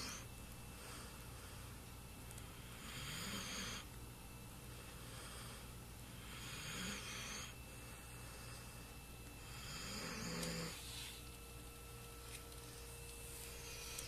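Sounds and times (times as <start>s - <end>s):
dog snoring: 0.0s - 1.1s, 2.5s - 3.9s, 5.0s - 8.7s, 9.4s - 11.2s.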